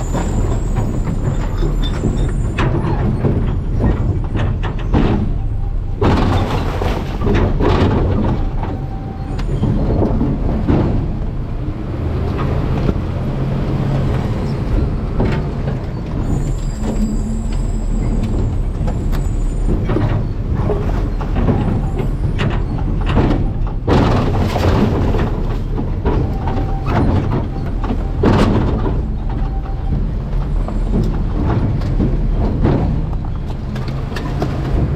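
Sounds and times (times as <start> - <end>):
garbage truck running: 0.0 - 34.9
refuse knocking and crunching: 0.0 - 34.9
thin squeal: 16.2 - 18.3.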